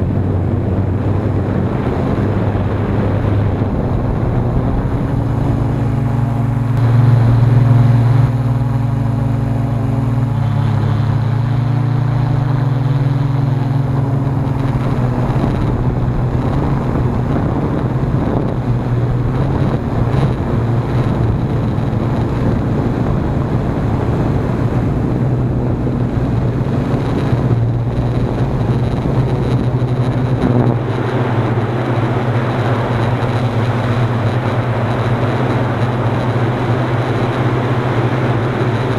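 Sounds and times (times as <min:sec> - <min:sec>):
wind on microphone: 0:00.0 - 0:38.9
drone motors buzzing: 0:03.2 - 0:22.9.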